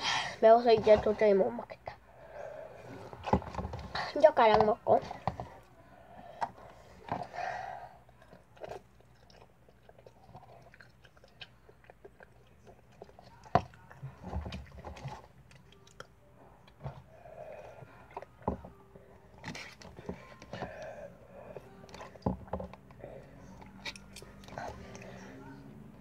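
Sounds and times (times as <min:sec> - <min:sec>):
child chewing noodles: 0:05.0 - 0:25.5.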